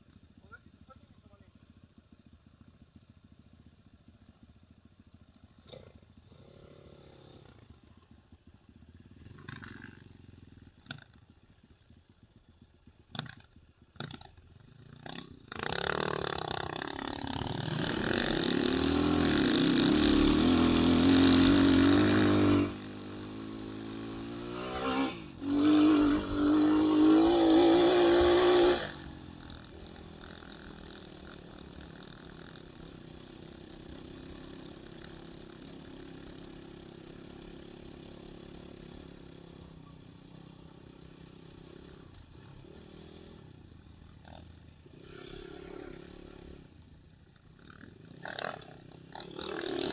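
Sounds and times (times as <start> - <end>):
dirt bike engine revving: 13.1 - 49.9.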